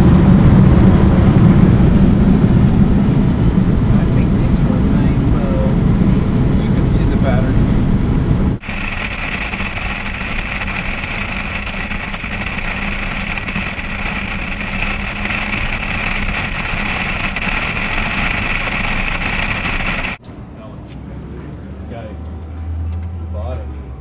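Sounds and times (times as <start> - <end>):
vehicle engine noise: 0.0 - 24.0
high hiss: 8.6 - 20.2.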